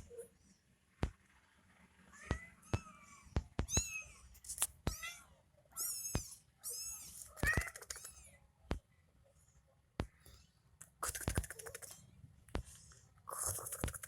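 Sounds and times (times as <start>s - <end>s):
kitten mewing: 5.8s - 8.2s
sharp clicks: 10.8s - 12.0s.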